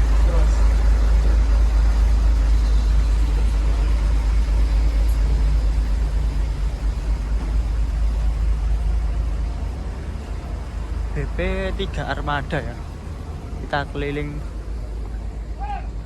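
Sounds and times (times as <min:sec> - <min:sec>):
large vehicle engines idling: 0:00.0 - 0:16.0.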